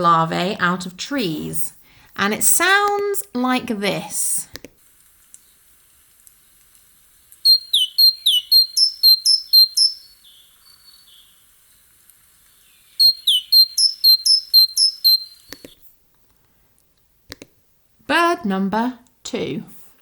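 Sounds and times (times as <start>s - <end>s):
great tit singing: 7.4s - 11.4s, 12.5s - 15.8s.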